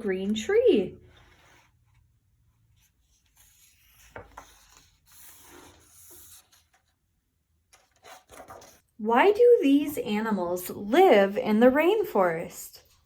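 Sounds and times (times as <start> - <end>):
rubbing and rustling handling noise: 1.0 - 9.0.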